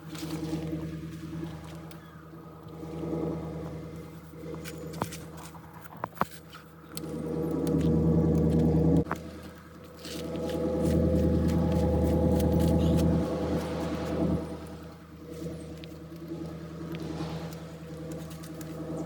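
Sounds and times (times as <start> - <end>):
forklift engine revving: 10.2 - 19.0.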